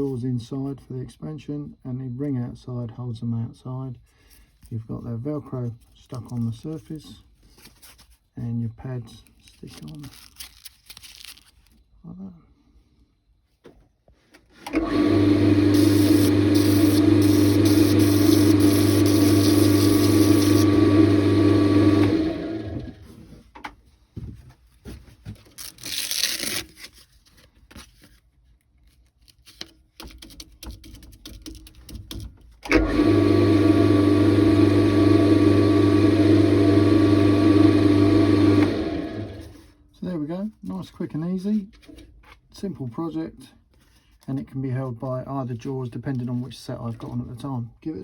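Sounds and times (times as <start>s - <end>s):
wood lathe motor running: 14.8s - 23.0s, 32.7s - 39.6s
faint clicks and handling noises: 26.8s - 32.6s.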